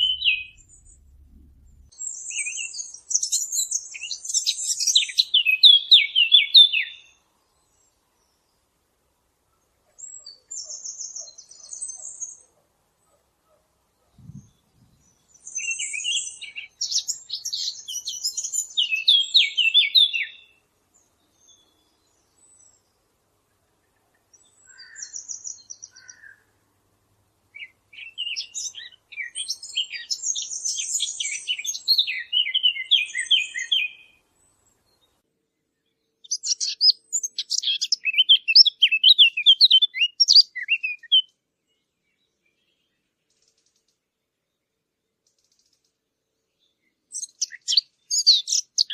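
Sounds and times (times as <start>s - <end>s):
songbird warbling: 0.0s - 1.1s, 24.6s - 26.4s, 36.2s - 41.3s, 47.2s - 48.9s
low thump: 0.0s - 2.0s.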